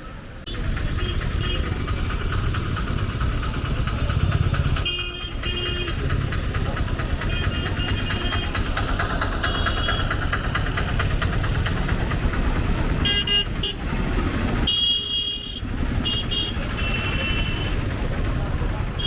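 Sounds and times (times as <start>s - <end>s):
street traffic engines: 0.0s - 19.0s
vehicle horns honking: 0.8s - 2.0s, 4.7s - 6.3s, 7.2s - 10.3s, 13.0s - 14.0s, 14.6s - 18.0s.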